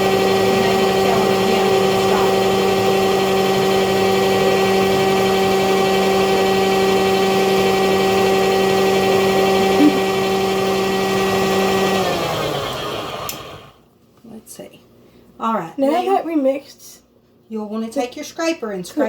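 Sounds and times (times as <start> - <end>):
stand mixer running: 0.0 - 13.8.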